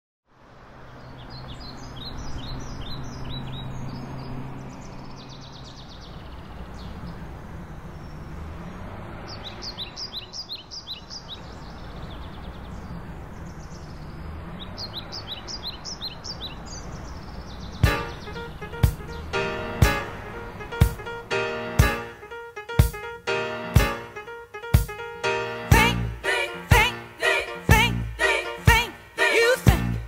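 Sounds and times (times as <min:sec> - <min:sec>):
outdoor background noise: 0:00.3 - 0:24.6
songbirds chirping: 0:00.7 - 0:22.6.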